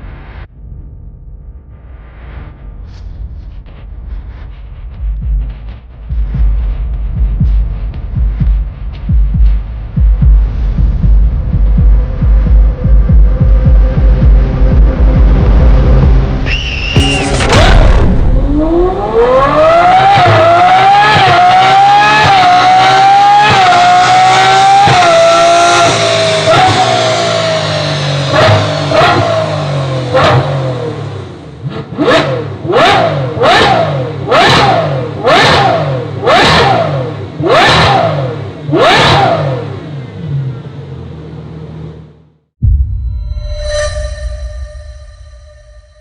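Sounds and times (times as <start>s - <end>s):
sports car engine accelerating: 0.0s - 42.5s
engine throttle blips: 0.0s - 46.0s.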